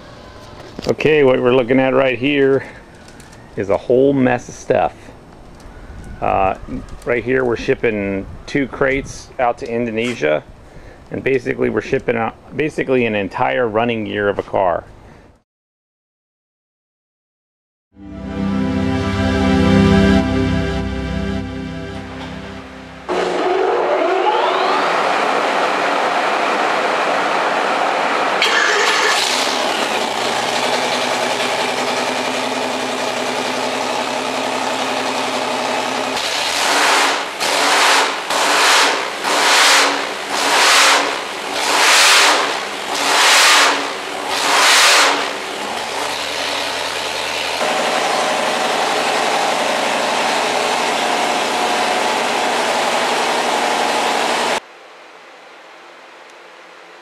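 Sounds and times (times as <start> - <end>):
engine running and revving: 23.1 - 54.6.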